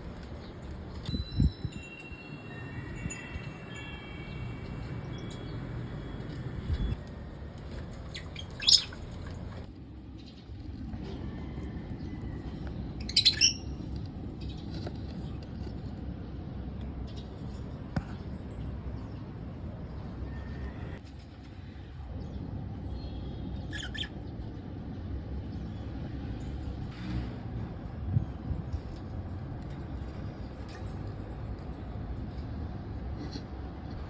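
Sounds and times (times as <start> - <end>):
bird squawks: 8.2 - 9.0, 23.7 - 24.2.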